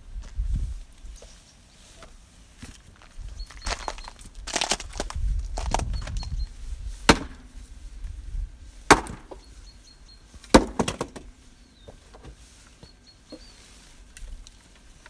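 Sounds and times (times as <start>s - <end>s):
axe striking wood: 7.1s - 7.6s, 8.9s - 9.4s, 10.5s - 11.3s.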